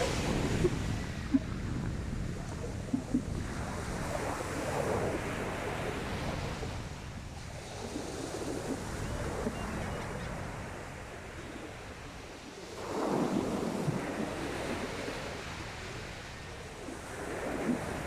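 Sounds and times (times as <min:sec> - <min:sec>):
sea waves breaking: 0:00.0 - 0:06.8
wind buffeting microphone: 0:00.0 - 0:10.6.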